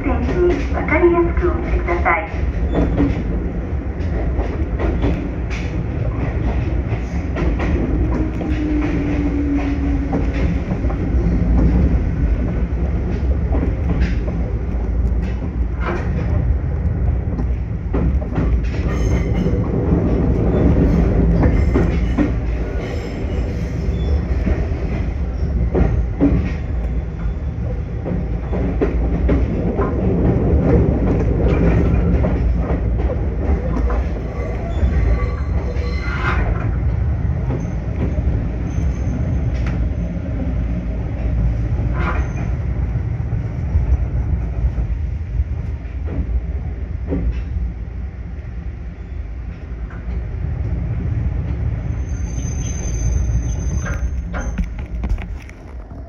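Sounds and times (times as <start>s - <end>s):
train braking: 51.8s - 54.7s
wheel squeal: 51.9s - 54.7s.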